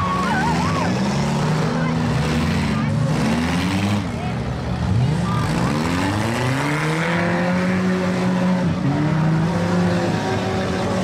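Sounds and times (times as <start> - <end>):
car engine revving: 0.0 - 11.0
other car engines running roughly: 0.0 - 11.0.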